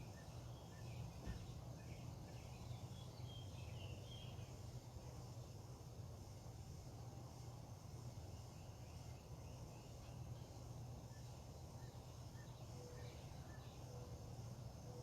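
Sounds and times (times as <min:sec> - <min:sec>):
faint bird chirps: 0:00.0 - 0:04.6, 0:08.3 - 0:15.0
faint high insect drone: 0:00.0 - 0:15.0
steady low hum: 0:00.0 - 0:15.0.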